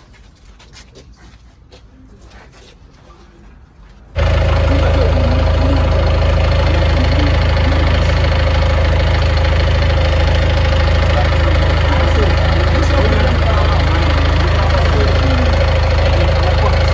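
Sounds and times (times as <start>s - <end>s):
engine idling loudly: 4.2s - 16.9s.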